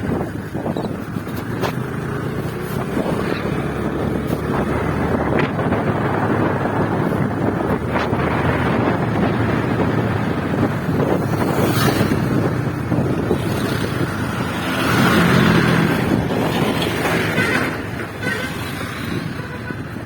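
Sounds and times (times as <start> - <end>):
motorcycle engine running: 0.0 - 15.0
wind rushing over microphone: 0.0 - 20.0.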